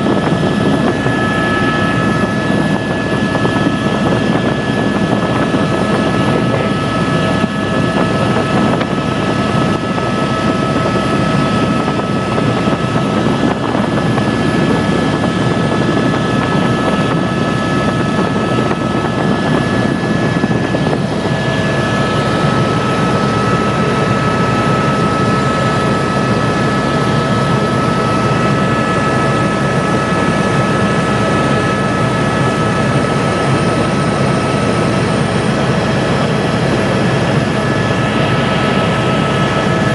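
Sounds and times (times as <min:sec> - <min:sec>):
helicopter rotor and engine: 0:00.0 - 0:39.9
high whine: 0:00.0 - 0:39.9.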